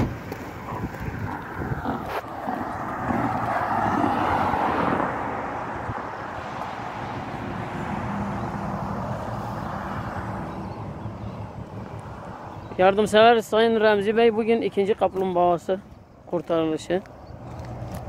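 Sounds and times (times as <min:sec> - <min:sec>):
passing motor vehicle rushing: 0:00.0 - 0:12.7.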